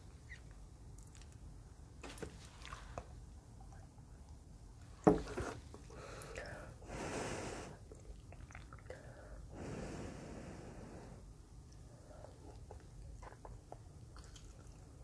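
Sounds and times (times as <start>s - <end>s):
airy breath sounds: 6.0s - 7.8s, 9.1s - 11.3s
chewing noodles: 12.2s - 15.0s.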